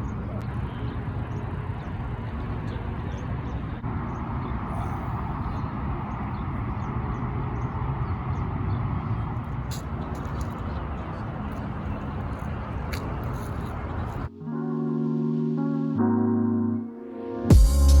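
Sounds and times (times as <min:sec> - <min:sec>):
vehicle traffic rumble: 0:00.0 - 0:14.3.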